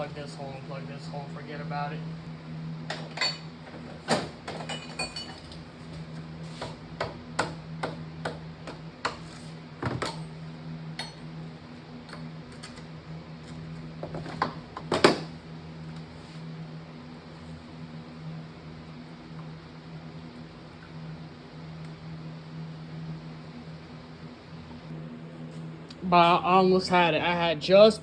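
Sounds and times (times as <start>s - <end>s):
metal tools clinking on engine parts: 2.9s - 3.5s, 4.5s - 5.6s.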